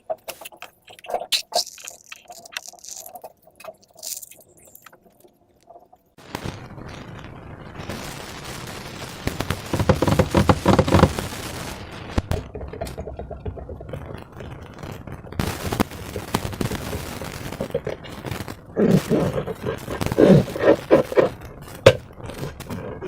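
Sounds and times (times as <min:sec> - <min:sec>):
slime squished by hand: 0:00.0 - 0:04.9.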